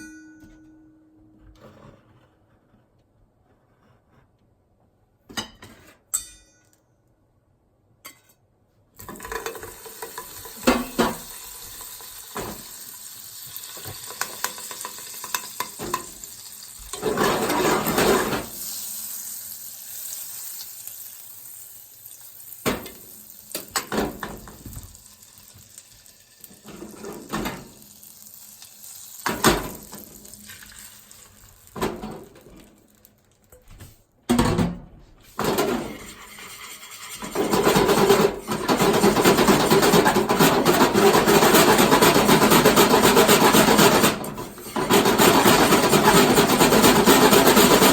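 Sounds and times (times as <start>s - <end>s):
eggs sizzling in frying pan: 9.0s - 33.5s, 35.4s - 42.9s.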